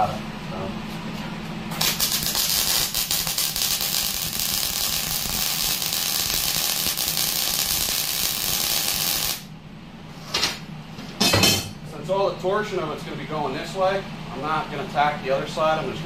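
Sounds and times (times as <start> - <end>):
arc welding crackling sizzle: 1.7 - 9.5.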